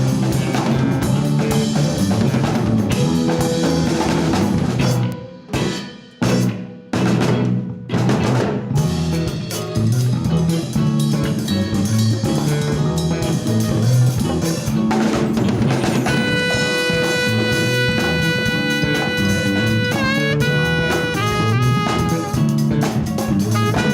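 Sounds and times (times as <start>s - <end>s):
bass groove: 0.0s - 23.9s
drum kit groove: 0.0s - 23.9s
jazz band playing: 0.0s - 23.9s
horn long note: 16.1s - 22.6s, 23.6s - 23.9s.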